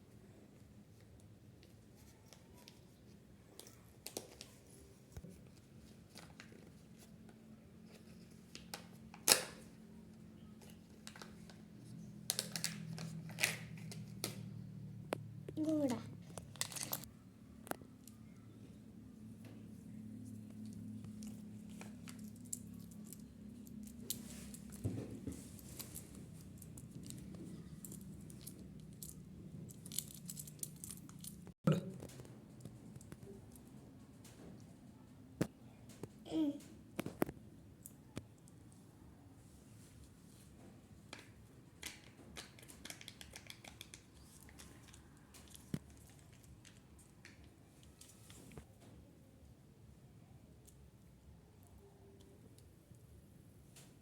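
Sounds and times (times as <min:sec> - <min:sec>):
plastic and foil packaging crinkling: 0:16.4 - 0:17.1.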